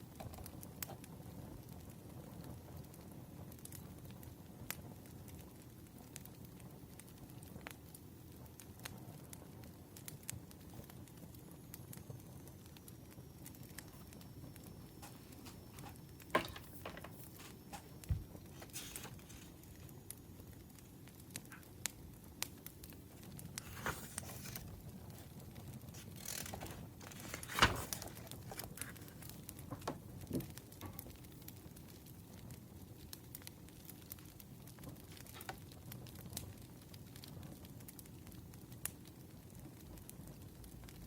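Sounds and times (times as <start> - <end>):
low hiss: 0.0 - 37.2
firewood crackling and popping: 0.0 - 41.0.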